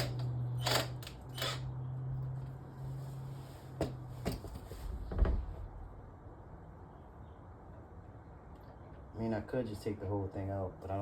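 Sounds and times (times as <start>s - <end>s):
deep thump: 4.9s - 5.9s.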